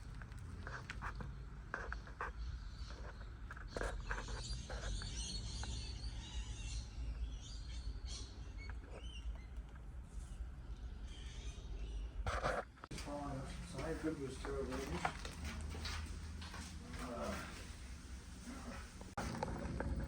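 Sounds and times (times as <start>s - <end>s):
birds chirping: 1.1s - 12.2s.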